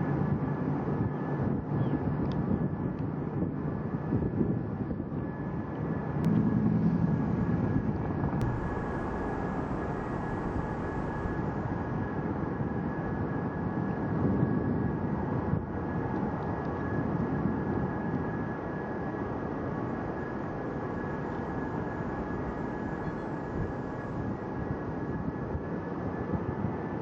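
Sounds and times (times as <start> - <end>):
jet engines running: 5.3 - 14.1, 17.9 - 25.8
high thin whine: 8.4 - 12.2, 20.6 - 24.6.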